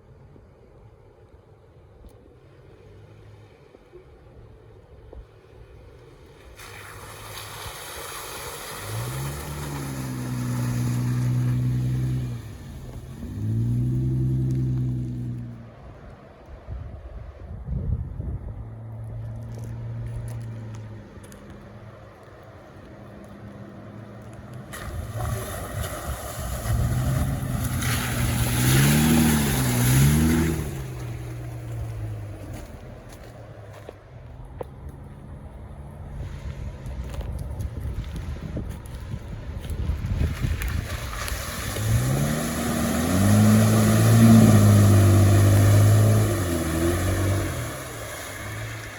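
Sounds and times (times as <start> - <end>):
car engine revving: 8.7 - 15.6, 24.8 - 32.5, 41.6 - 48.9
tyre and wind rushing noise: 24.6 - 33.6, 35.9 - 48.9
car engine pulling hard: 40.4 - 48.9.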